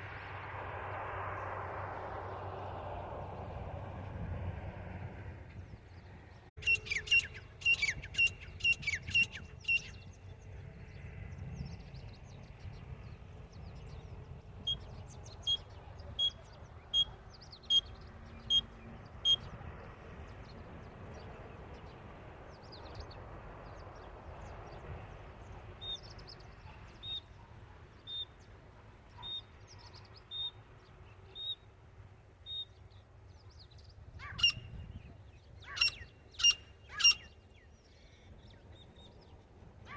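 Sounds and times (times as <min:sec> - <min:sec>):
francolin calling: 0:15.4 - 0:17.9.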